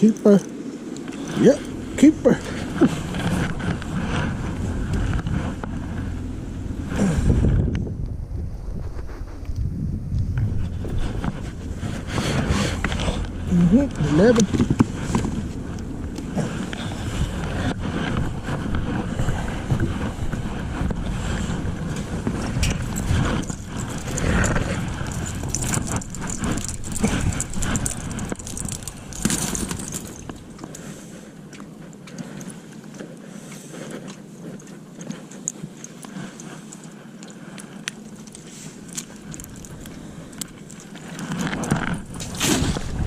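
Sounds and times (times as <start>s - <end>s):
wind buffeting microphone: 0.0s - 32.8s, 37.0s - 43.0s
gear knocking in boat: 10.4s - 43.0s.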